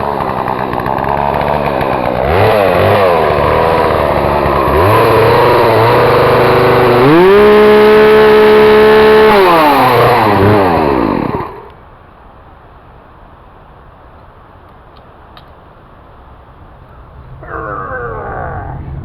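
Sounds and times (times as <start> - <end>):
chainsaw running and revving: 0.0 - 11.7.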